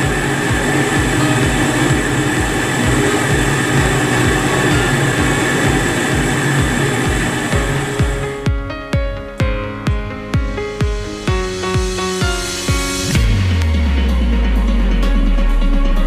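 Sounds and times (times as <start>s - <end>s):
washing machine running: 0.0s - 8.5s.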